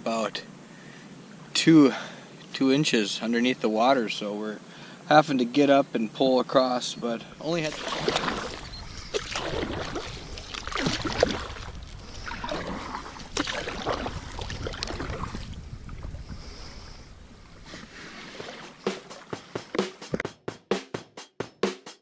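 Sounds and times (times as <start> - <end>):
water splashing around kayak: 7.1 - 20.1
wind rumble on microphone: 7.8 - 18.8.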